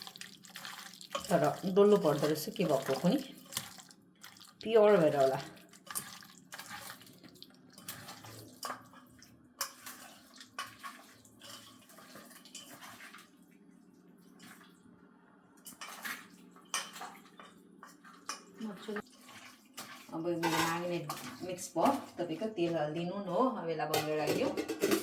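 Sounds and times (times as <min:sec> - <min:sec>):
wet squelching of meat mixing: 0:00.0 - 0:15.0.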